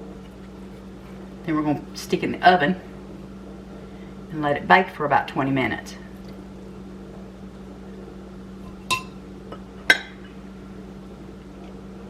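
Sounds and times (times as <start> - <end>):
steady low hum: 0.0 - 12.0
dishes clinking: 8.7 - 10.3.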